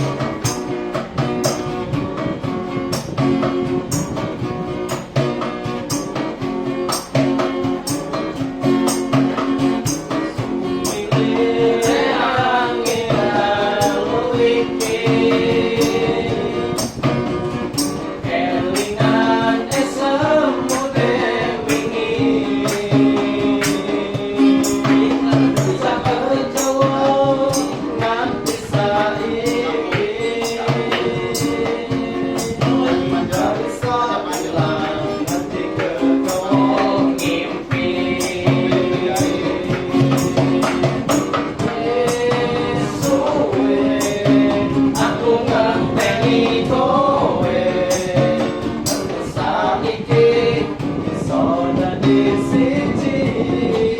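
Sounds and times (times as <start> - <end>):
guitar: 0.0 - 53.9
person singing: 10.2 - 17.0, 18.2 - 53.9.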